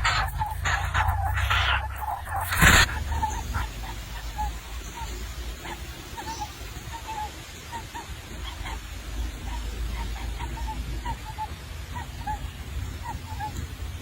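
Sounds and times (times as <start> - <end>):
low rumble: 0.0 - 4.7
bird giving short calls: 0.0 - 6.6.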